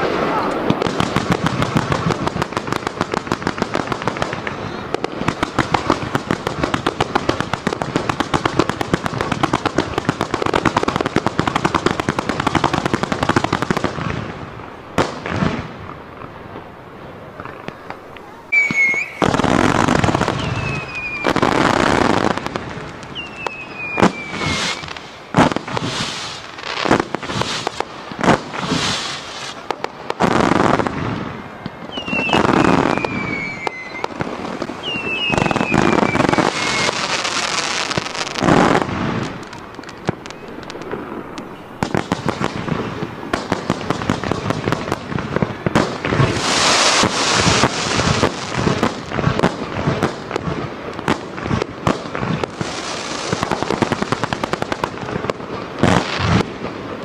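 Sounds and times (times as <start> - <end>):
fireworks crackling: 0.0 - 57.0
loud firework bursts: 0.0 - 57.0
falling firework whistles: 4.2 - 6.1, 17.5 - 29.6, 30.2 - 43.7, 46.1 - 50.1.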